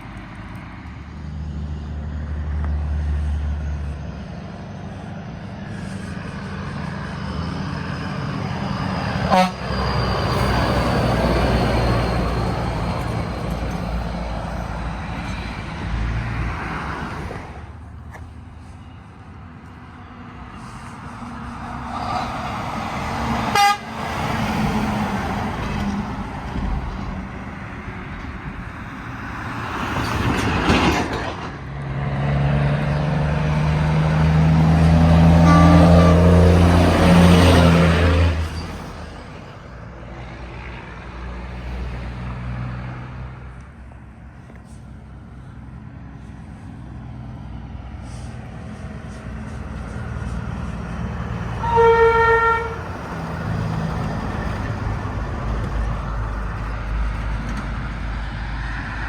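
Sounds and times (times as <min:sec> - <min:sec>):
trucks passing: 0:00.0 - 0:59.0
truck horn blast: 0:09.3 - 0:10.0, 0:23.4 - 0:24.4, 0:34.8 - 0:38.4, 0:51.5 - 0:53.3.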